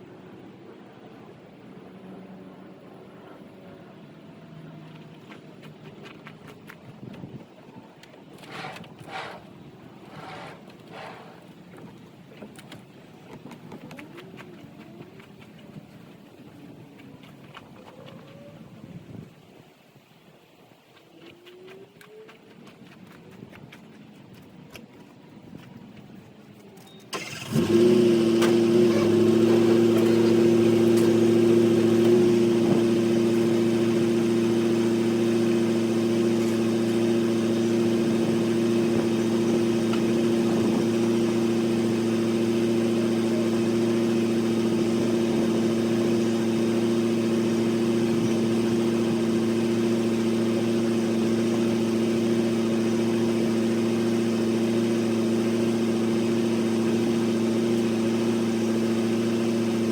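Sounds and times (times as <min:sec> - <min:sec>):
engine idling: 0:27.1 - 0:59.9.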